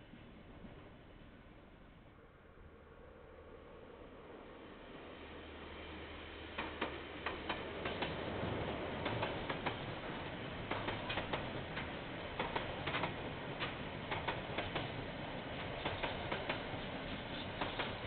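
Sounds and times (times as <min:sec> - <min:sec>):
train rolling noise: 0:00.0 - 0:18.0
train wheels clicking over joints: 0:06.6 - 0:18.0.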